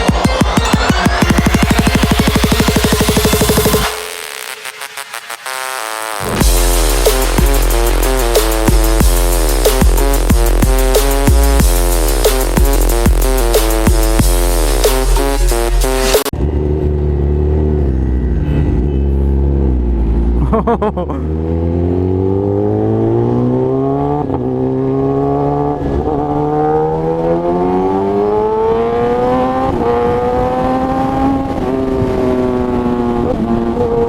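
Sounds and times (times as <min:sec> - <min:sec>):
electronic intro music: 0:00.0 - 0:16.3
motorcycle engine revving: 0:00.0 - 0:20.5, 0:21.2 - 0:34.0.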